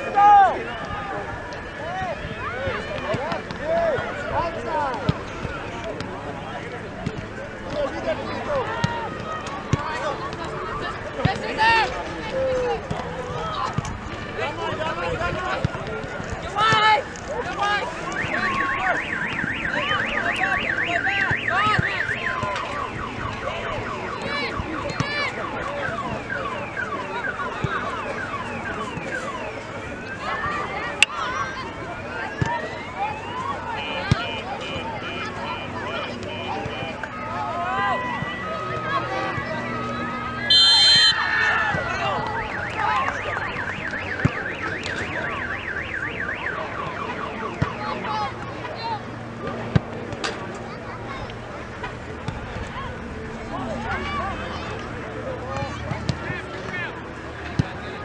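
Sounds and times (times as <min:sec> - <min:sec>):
warbling electronic siren: 0:17.4 - 0:49.4
car alarm sounding: 0:17.6 - 0:31.1, 0:33.1 - 0:37.1, 0:39.7 - 0:48.4.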